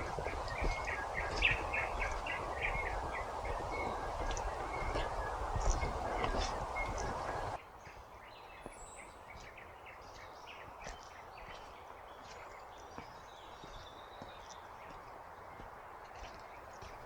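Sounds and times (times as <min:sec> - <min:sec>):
birds chirping and calling: 0:00.0 - 0:07.6
faint steady hiss: 0:00.0 - 0:07.6.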